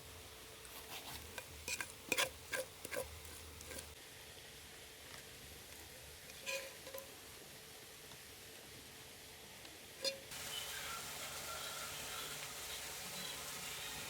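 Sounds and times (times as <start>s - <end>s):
utensil clinking against metal pot: 1.3s - 3.9s.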